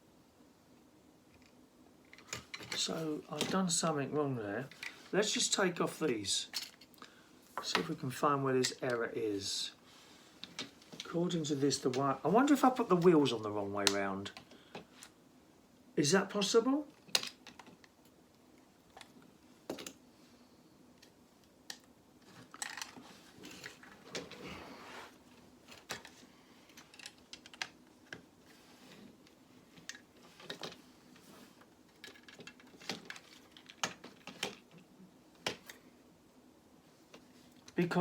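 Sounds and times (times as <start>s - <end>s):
plastic pieces clicking and rattling: 21.7s - 24.3s, 25.8s - 28.2s, 31.9s - 34.8s.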